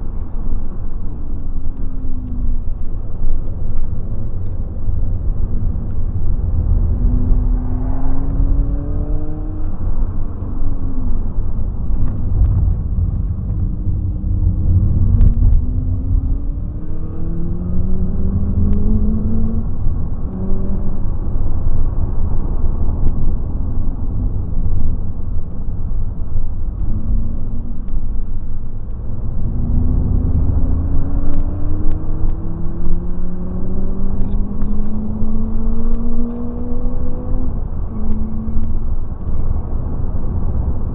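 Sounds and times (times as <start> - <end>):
low rumble: 0.0 - 40.9
car engine revving: 4.4 - 21.2, 29.0 - 40.9.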